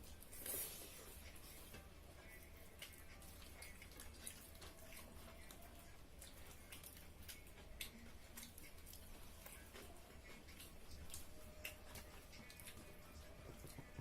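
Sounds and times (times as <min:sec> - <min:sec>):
faint clicks of people eating: 0:00.0 - 0:14.0.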